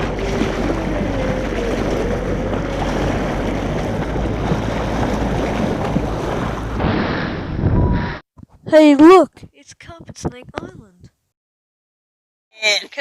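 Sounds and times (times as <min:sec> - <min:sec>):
outboard motor humming: 0:00.0 - 0:07.1
wind and water rushing: 0:00.0 - 0:08.2.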